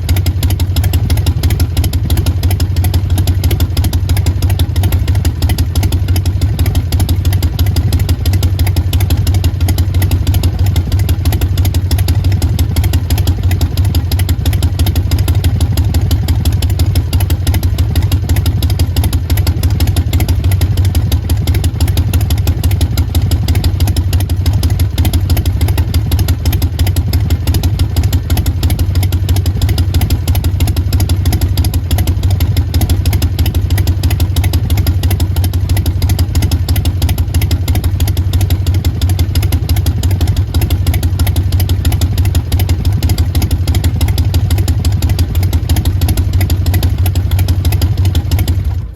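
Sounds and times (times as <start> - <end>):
motorcycle engine idling: 0.0 - 48.9.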